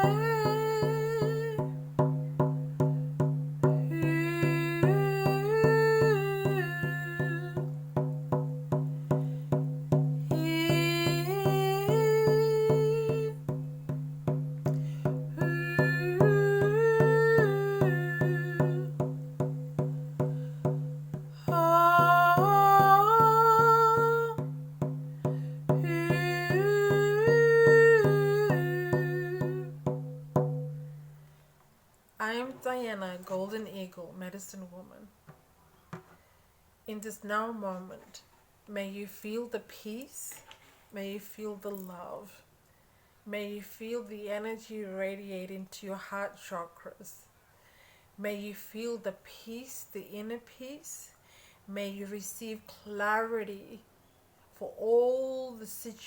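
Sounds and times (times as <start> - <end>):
woman chanting: 0.0 - 1.8, 3.7 - 7.7, 10.2 - 13.6, 15.0 - 19.2, 21.3 - 24.6, 25.7 - 29.8, 32.2 - 35.1, 36.9 - 40.4, 43.3 - 47.3, 48.2 - 53.9, 54.5 - 56.0
even drumbeat: 0.0 - 31.1.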